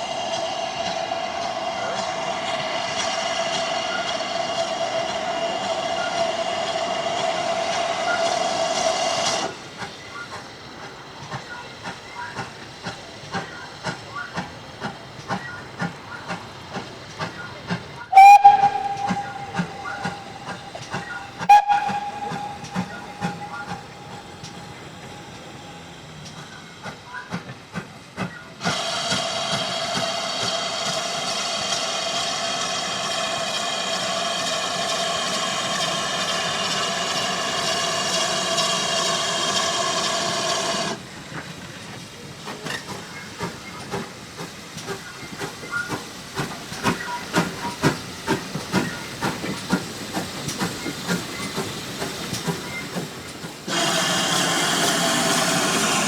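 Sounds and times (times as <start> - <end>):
steam train chuffing past: 0.0 - 56.0
steam locomotive whistle: 18.1 - 25.8, 53.7 - 56.0.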